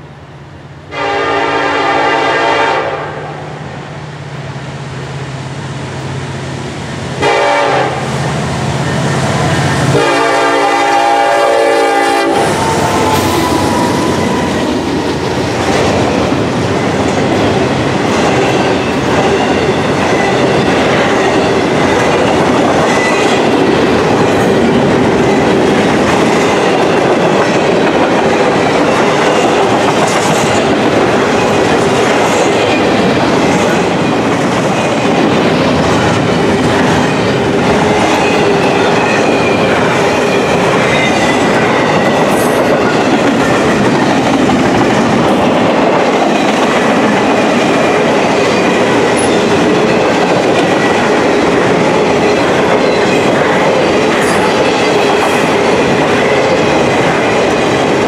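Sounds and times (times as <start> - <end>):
freight train wheels rumbling: 0.0 - 58.0
clattering over track: 12.6 - 58.0.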